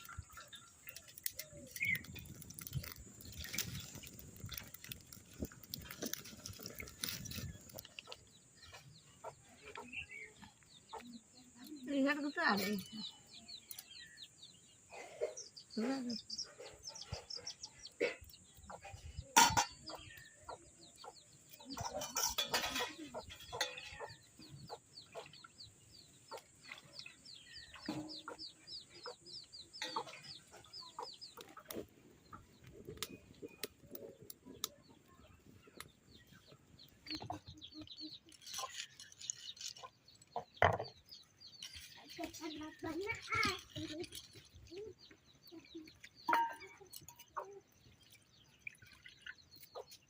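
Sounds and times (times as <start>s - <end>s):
chickens clucking: 5.4s - 11.3s, 15.0s - 25.5s, 27.7s - 48.0s.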